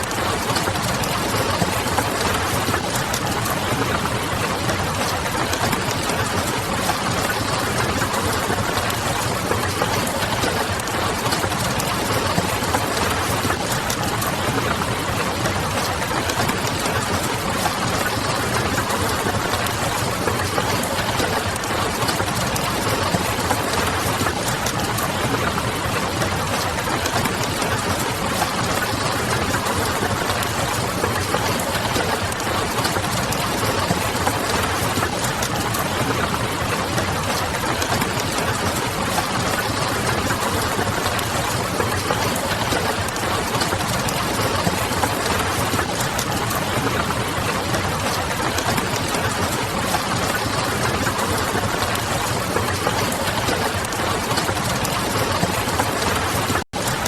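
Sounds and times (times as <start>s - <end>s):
rain pattering on window: 0.0s - 57.0s.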